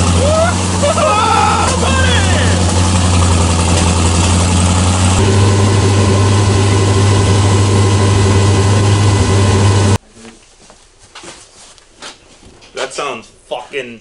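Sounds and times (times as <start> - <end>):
car engine running loud: 0.0 - 10.0.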